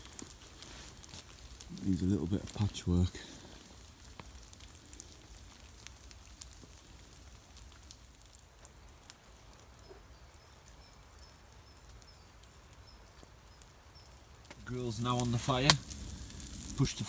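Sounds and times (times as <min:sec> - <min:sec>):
rain dripping: 0:00.0 - 0:17.0
small bird chirping: 0:09.3 - 0:14.3.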